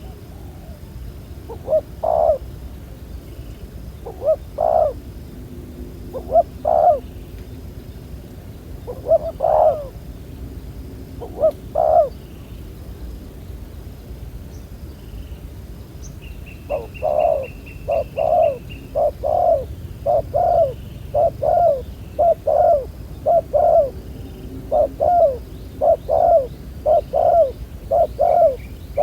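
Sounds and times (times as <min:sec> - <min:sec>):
dove cooing: 0:00.0 - 0:00.8, 0:01.5 - 0:02.4, 0:04.0 - 0:05.0, 0:06.1 - 0:07.1, 0:08.9 - 0:10.0, 0:11.2 - 0:12.2, 0:16.7 - 0:24.0, 0:24.6 - 0:29.0.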